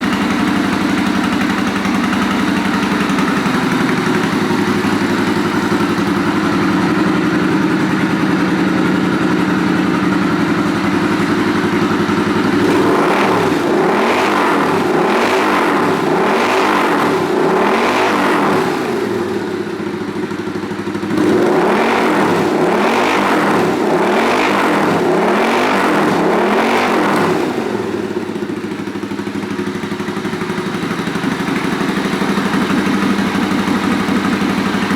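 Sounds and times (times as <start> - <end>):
motorcycle engine idling and revving: 0.0 - 34.9.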